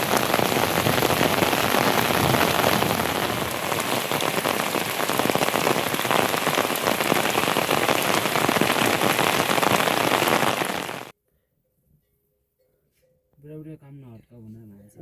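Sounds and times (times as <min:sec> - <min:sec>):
heavy rain falling: 0:00.0 - 0:11.1.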